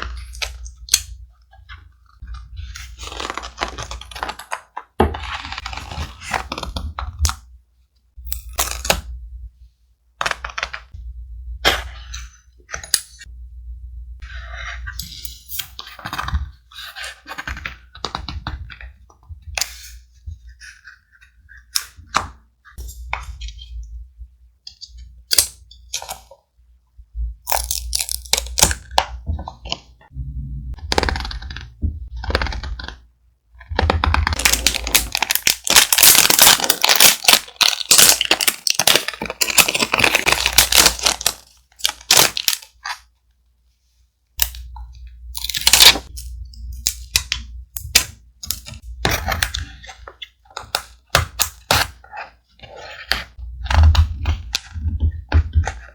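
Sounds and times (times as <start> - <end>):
thick paper crinkling: 2.5 - 7.0, 33.6 - 43.0.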